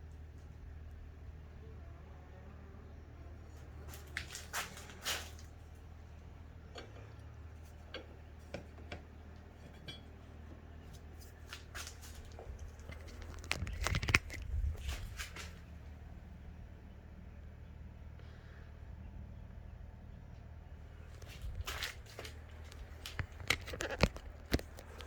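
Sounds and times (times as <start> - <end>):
low steady hum: 0.0 - 25.0
hands handling tools: 10.9 - 15.6, 21.1 - 25.0.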